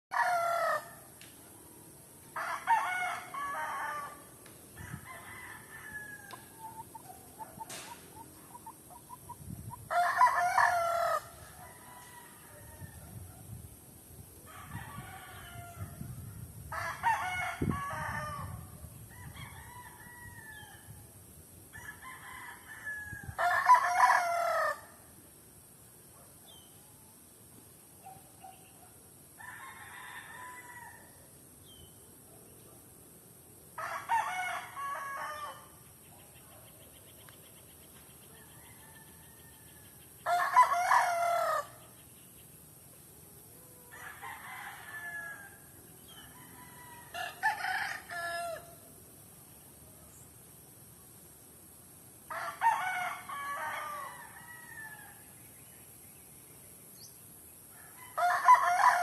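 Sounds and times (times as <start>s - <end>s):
roosters crowing: 0.1s - 1.1s, 2.2s - 13.0s, 14.4s - 21.0s, 21.7s - 25.0s, 29.4s - 31.3s, 33.7s - 35.8s, 38.4s - 41.9s, 43.7s - 49.0s, 52.3s - 55.2s, 57.8s - 59.0s
faint rooster calls: 9.8s - 13.3s, 43.5s - 48.9s.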